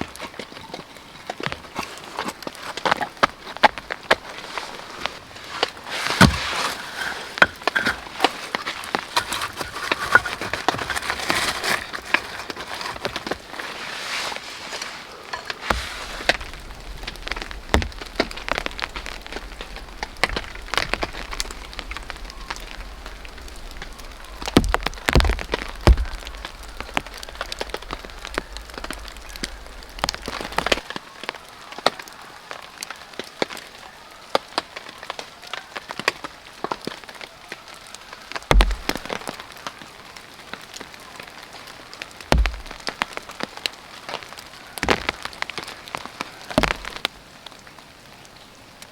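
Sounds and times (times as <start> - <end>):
rain on a tarp: 0.0 - 48.9
heavy thuds on a tarp: 4.5 - 14.8, 15.6 - 16.5, 38.5 - 39.2, 42.3 - 42.9.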